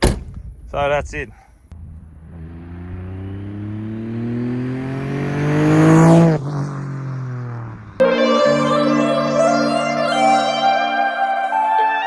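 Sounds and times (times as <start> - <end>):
car engine accelerating hard: 1.8 - 9.5.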